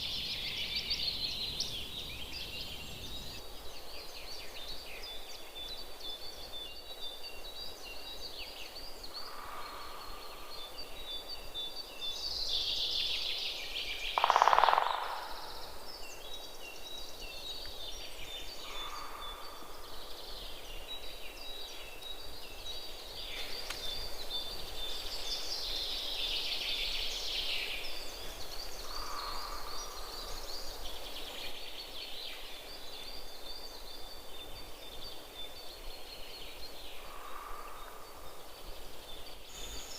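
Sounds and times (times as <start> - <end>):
birds chirping high twitter: 0.0 - 39.9
lower bird call: 14.2 - 15.6.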